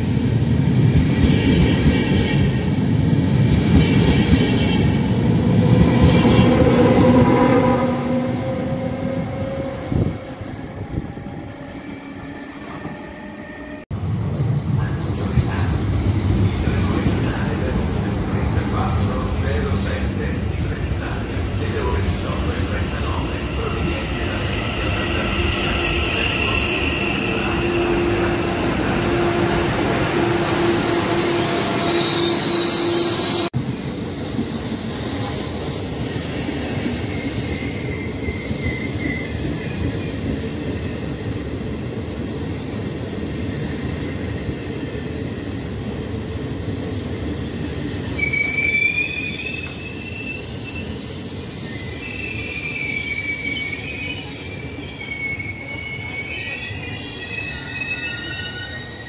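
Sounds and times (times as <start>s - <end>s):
train passing with steady whine: 0.0s - 48.5s
train wheel squeals: 31.5s - 33.5s, 36.9s - 44.6s, 47.6s - 59.0s.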